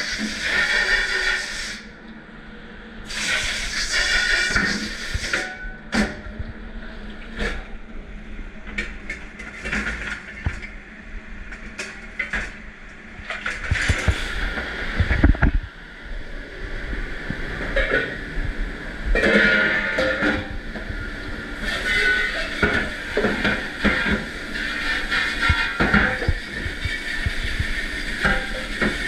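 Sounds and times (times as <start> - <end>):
dish machine running: 17.5 - 29.0.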